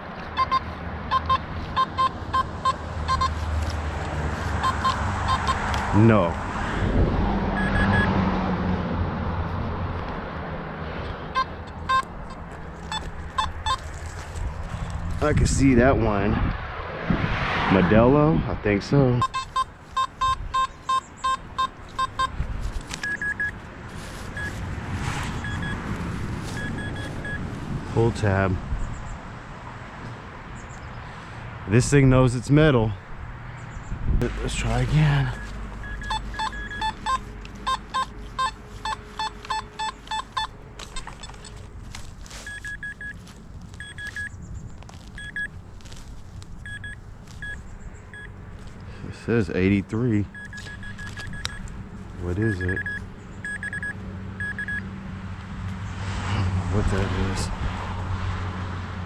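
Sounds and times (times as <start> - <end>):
metal detector beeps: 0.4 - 3.4, 4.6 - 5.7, 7.6 - 8.1, 11.4 - 13.9, 19.2 - 22.4, 23.0 - 23.6, 24.4 - 24.6, 25.4 - 25.8, 26.5 - 27.4, 35.2 - 41.7, 42.4 - 43.2, 43.8 - 44.4, 45.0 - 45.5, 46.6 - 48.3, 50.3 - 51.7, 52.5 - 54.8.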